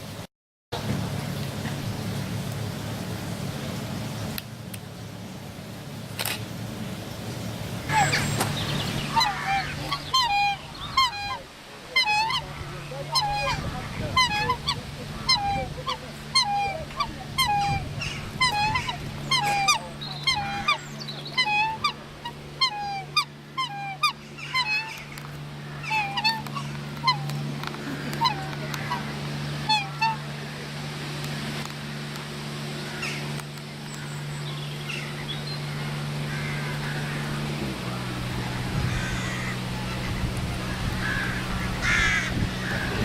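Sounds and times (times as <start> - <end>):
steady low hum: 0.8 - 43.0
geese honking: 7.8 - 30.8, 32.8 - 33.4, 34.8 - 43.0.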